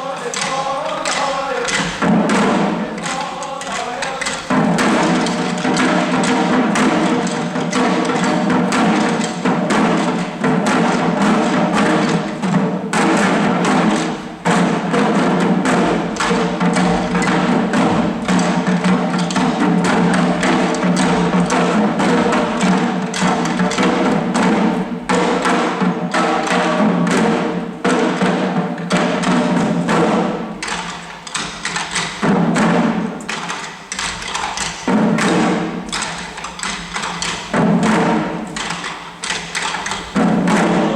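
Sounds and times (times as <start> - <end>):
chanted song: 0.0 - 5.3
drums beaten in quick rhythm: 0.0 - 40.9.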